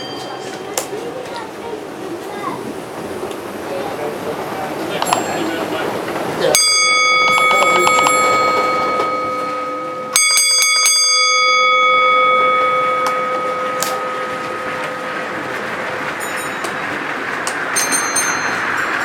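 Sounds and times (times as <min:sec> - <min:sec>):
block bell strokes ringing: 0:00.0 - 0:01.2, 0:04.9 - 0:19.0
higher fainter bell strikes: 0:00.0 - 0:01.4, 0:06.5 - 0:19.0.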